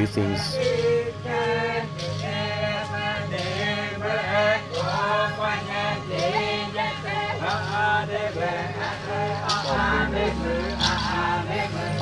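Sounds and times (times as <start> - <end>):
low drone: 0.0 - 12.0
voices singing a chant: 0.0 - 12.0.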